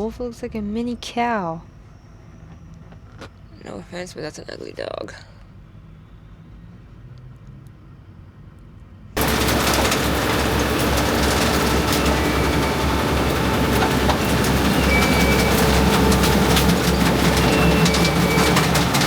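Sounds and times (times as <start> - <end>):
fast clattering rattle: 9.2 - 19.0
heavy machinery engine running: 9.2 - 19.0.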